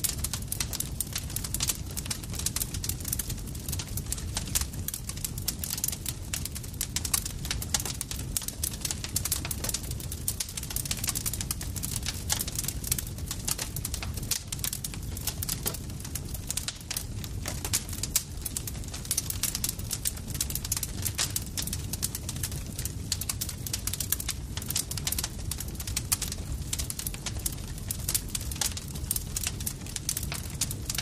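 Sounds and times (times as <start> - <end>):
campfire crackling: 0.0 - 31.0
low rumble of burning wood: 0.0 - 31.0.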